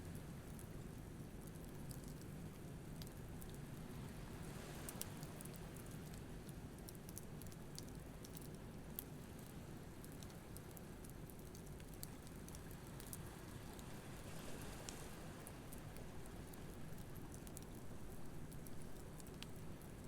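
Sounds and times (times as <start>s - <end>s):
campfire crackling and popping: 5.3s - 13.9s, 15.4s - 20.0s.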